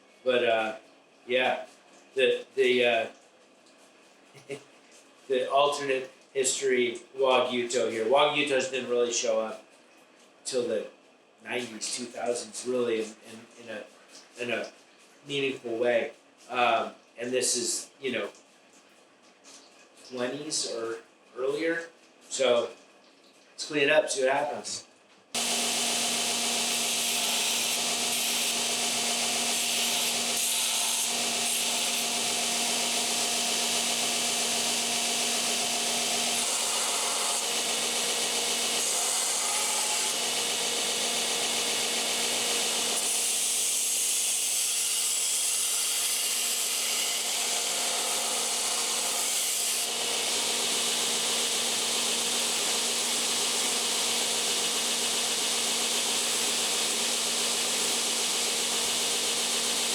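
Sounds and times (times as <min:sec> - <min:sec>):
motor hum: 0:25.4 - 0:43.2
belt grinder grinding metal: 0:25.4 - 0:59.9.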